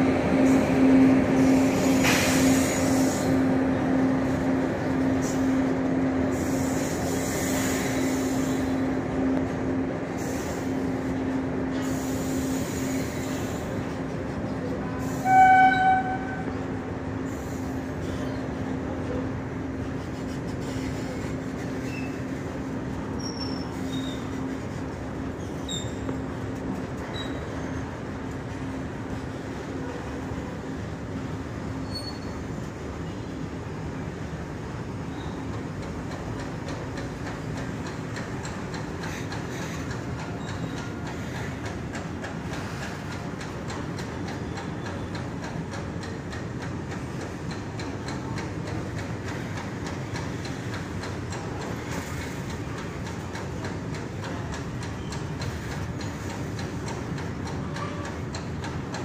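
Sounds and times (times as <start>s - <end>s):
steel wheels rumbling on rail: 0.0s - 59.0s
wheel clicks over rail joints: 35.5s - 59.0s.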